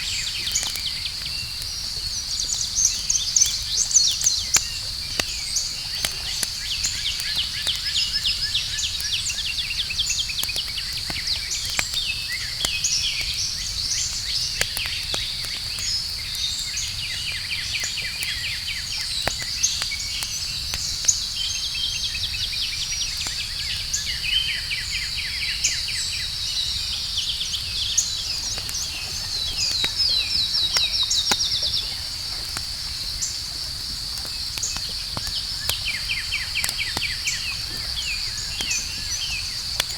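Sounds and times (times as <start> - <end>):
campfire crackling: 0.0 - 39.9
crickets and insects chirping: 0.0 - 39.9
birds chirping and trilling: 26.2 - 39.9.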